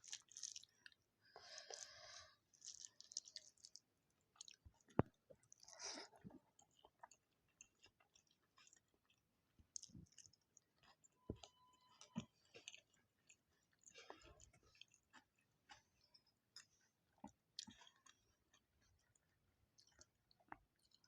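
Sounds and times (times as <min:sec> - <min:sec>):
person chewing food: 0:00.0 - 0:21.0.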